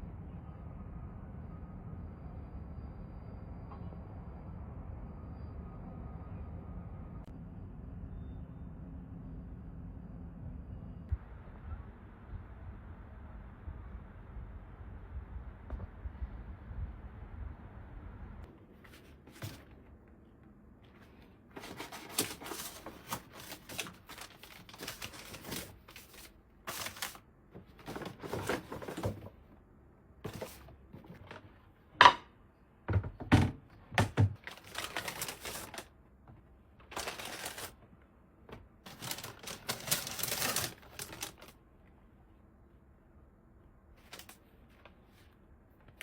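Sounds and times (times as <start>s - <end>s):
objects being handled: 20.8s - 29.4s, 30.2s - 32.2s, 36.8s - 37.8s, 38.5s - 41.5s.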